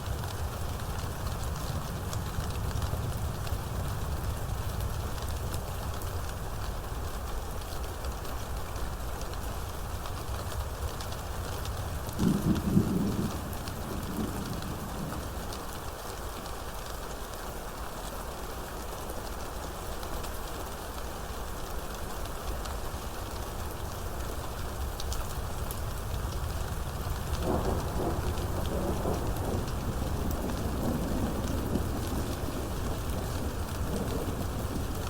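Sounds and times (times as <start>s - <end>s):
heavy rain falling: 0.0s - 35.0s
thunder rumbling: 12.2s - 15.6s, 25.8s - 35.0s.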